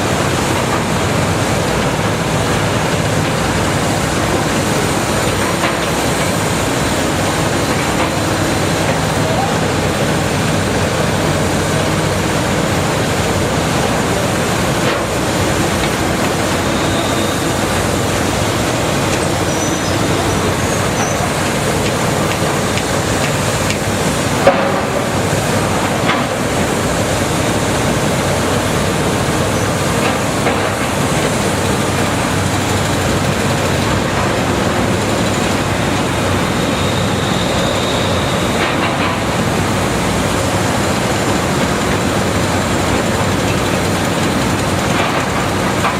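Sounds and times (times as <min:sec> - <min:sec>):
excavator diesel engine running: 0:00.0 - 0:45.9
hydraulic noise: 0:00.0 - 0:45.9.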